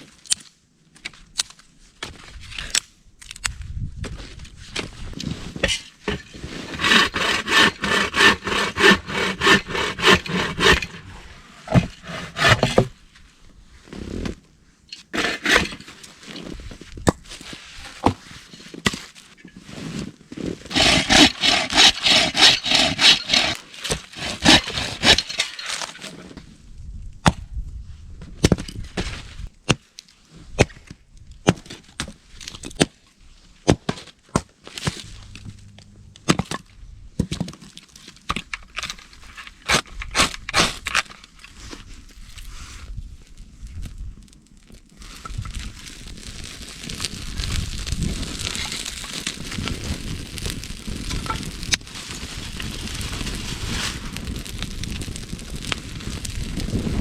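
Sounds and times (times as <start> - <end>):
hand saw cutting wood: 5.6 - 12.9, 15.1 - 15.8, 20.7 - 26.1, 39.6 - 41.2.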